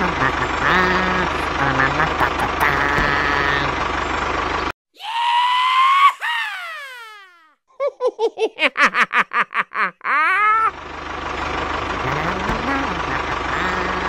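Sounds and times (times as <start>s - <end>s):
steady motor noise: 0.0s - 4.7s, 10.7s - 14.0s
high-pitched cartoon cry: 5.0s - 7.6s, 10.0s - 10.7s
high-pitched giggling: 7.7s - 10.7s.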